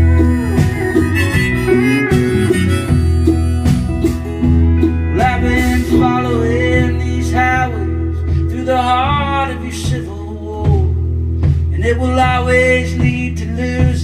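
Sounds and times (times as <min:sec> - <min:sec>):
bending lead melody: 0:00.0 - 0:10.2
country rock band playing: 0:00.0 - 0:14.0.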